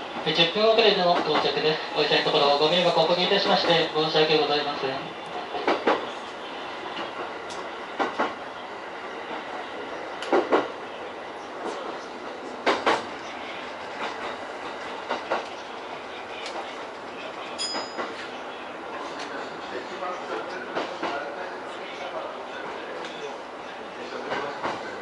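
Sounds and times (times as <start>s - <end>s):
train wheels clicking over rail joints: 7.0s - 8.4s, 10.2s - 10.7s, 12.6s - 13.1s.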